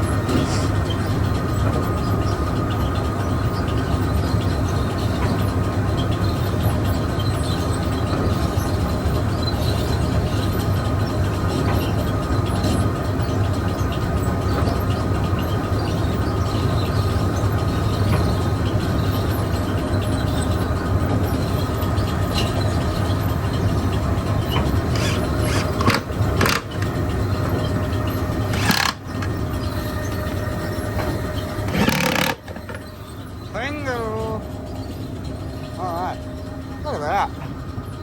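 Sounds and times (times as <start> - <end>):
machinery drone: 16.2 - 38.0
sharp knocks or scrapes: 25.0 - 26.8, 28.5 - 29.0, 31.0 - 32.9.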